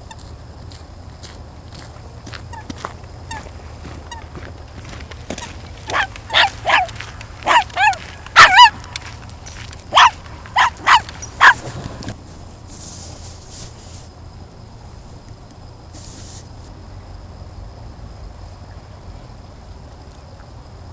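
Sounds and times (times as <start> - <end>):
geese honking: 2.0 - 12.2.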